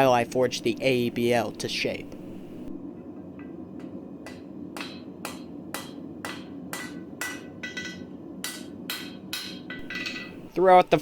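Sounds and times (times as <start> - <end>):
hammer striking steel on anvil: 3.4 - 10.5.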